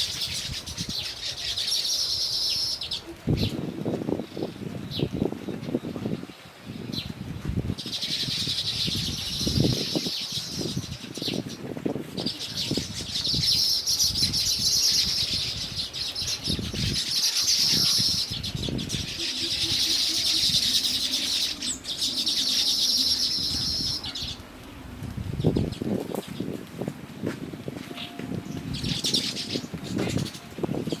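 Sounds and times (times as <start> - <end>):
birds chattering: 12.2 - 24.5, 28.0 - 31.0.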